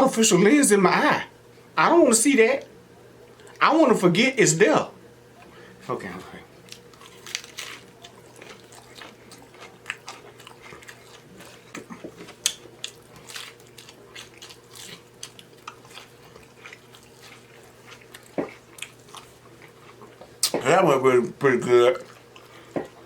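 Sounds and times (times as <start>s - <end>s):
taco crunching: 6.0s - 20.6s, 21.2s - 23.0s
wet mouth smacks: 20.4s - 20.6s.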